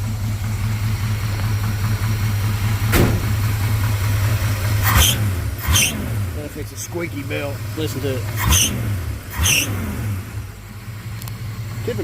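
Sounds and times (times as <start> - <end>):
engine knock: 0.0 - 9.6
truck engine idling: 0.0 - 12.0
harsh engine bursts: 1.8 - 10.6.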